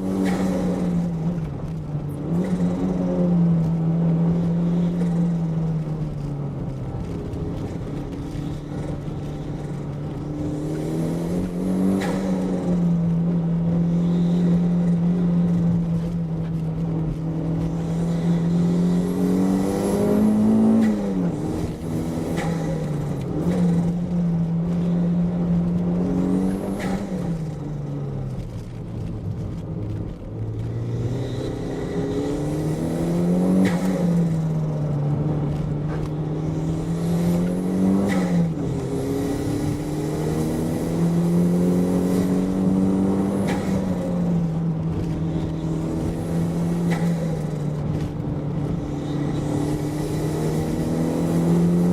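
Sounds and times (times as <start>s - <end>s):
car engine revving: 0.0s - 51.9s.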